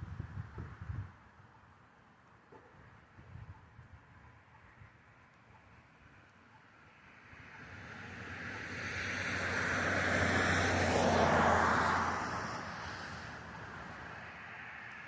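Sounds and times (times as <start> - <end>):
car passing by: 6.9 - 15.0.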